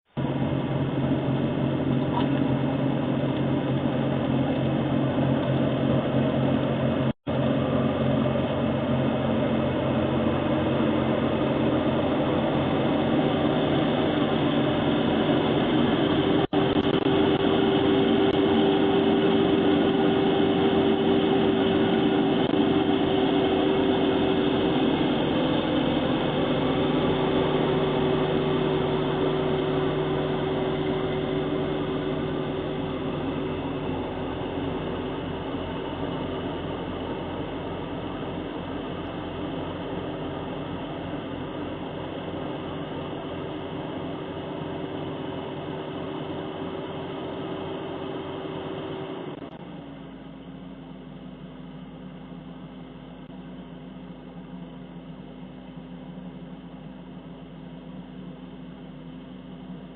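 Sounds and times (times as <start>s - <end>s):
snowblower through snow: 0.1s - 50.9s
tractor diesel engine running: 0.1s - 59.9s.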